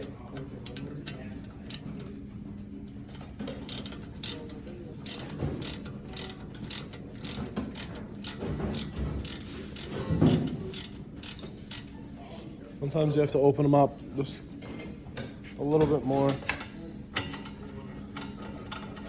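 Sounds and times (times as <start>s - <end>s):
ratcheting wrench clicking: 0.0s - 2.1s, 2.9s - 12.0s
steady low hum: 0.0s - 19.0s.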